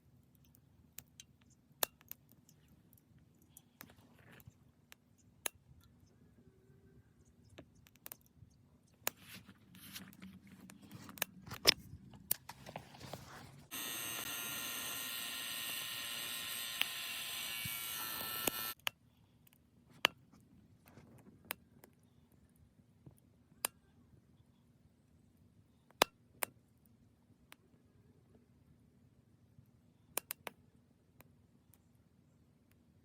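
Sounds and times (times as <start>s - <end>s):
electric blower fan whirring: 12.5s - 18.8s.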